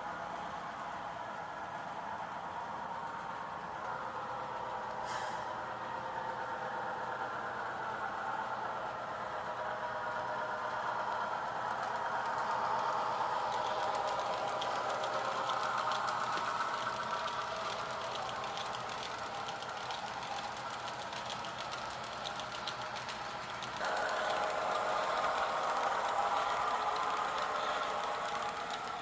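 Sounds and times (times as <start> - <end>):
model train running on track: 0.0 - 29.0
faint rapid ticking: 11.4 - 29.0.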